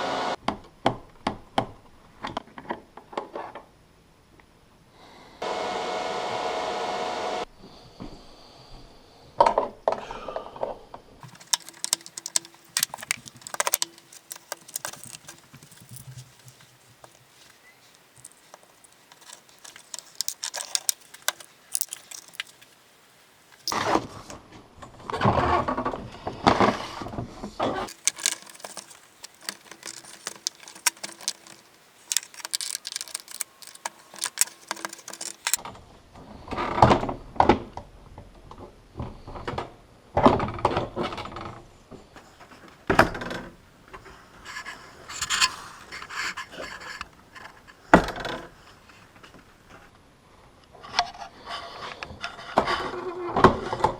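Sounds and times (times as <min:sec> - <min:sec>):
metal tools clinking and rattling: 0:11.2 - 0:23.8, 0:27.9 - 0:35.6.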